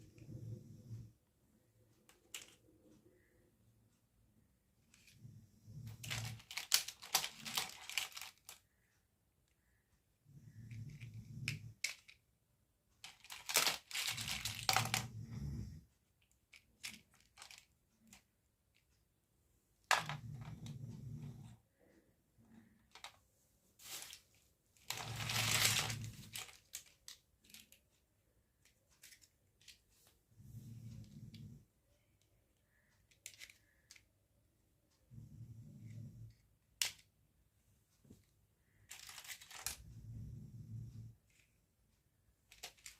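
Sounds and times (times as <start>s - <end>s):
packaging crinkling and tearing: 6.0s - 8.6s, 13.1s - 15.0s, 24.8s - 26.9s.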